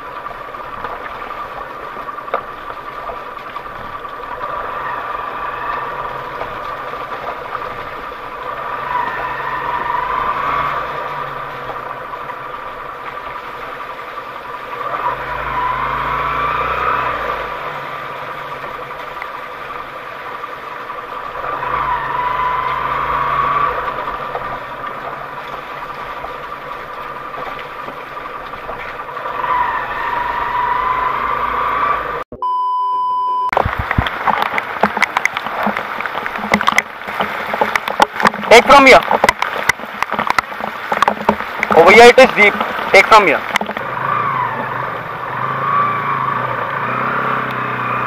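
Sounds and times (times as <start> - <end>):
off-road engine revving: 0.0 - 32.3, 33.6 - 48.0
steady beep: 32.3 - 33.6
sharp clicks and knocks: 33.5 - 43.9.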